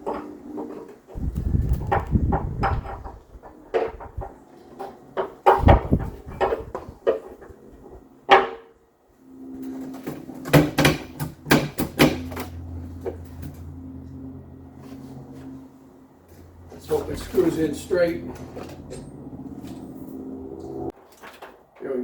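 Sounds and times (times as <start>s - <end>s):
low hum: 5.6s - 20.9s.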